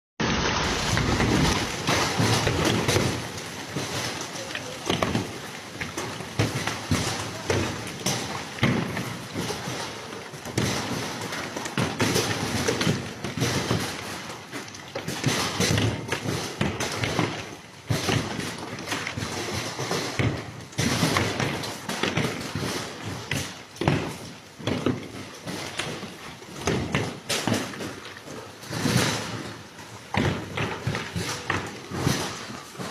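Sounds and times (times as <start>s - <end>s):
continuous hiss: 0.2s - 32.9s
irregular thumps and knocks: 0.8s - 32.9s.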